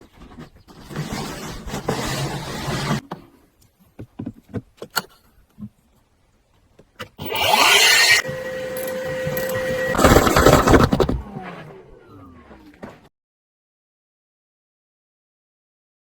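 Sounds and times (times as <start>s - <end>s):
small power tool motor whining: 7.2s - 13.1s.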